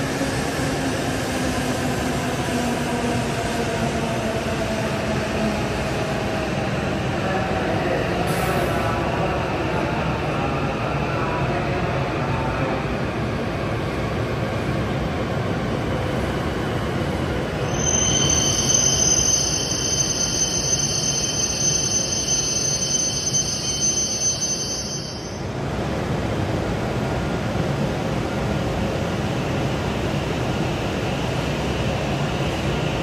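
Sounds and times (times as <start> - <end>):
train rumbling slowly: 0.0 - 33.0
high steady squeal: 17.6 - 25.4.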